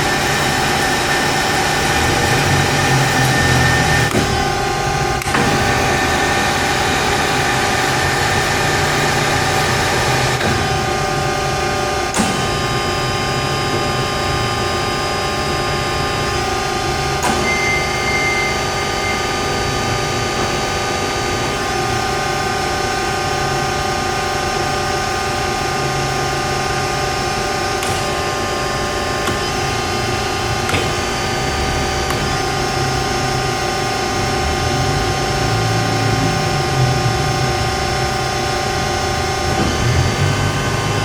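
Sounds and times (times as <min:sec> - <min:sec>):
band saw humming: 0:00.0 - 0:23.5, 0:26.2 - 0:41.0.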